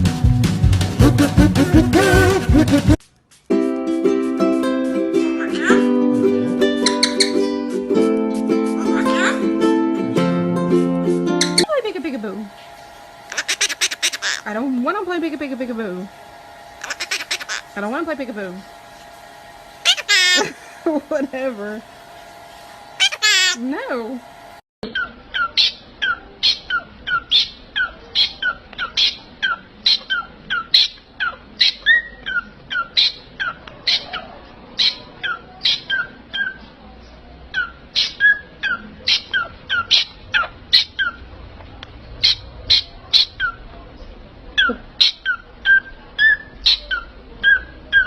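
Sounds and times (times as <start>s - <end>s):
parrot calling: 5.3s - 5.9s, 6.8s - 7.6s, 8.8s - 9.5s, 13.2s - 14.6s, 16.7s - 17.8s, 19.8s - 20.9s, 23.0s - 23.6s, 24.8s - 36.6s, 37.5s - 41.2s, 42.2s - 43.6s, 44.6s - 48.0s.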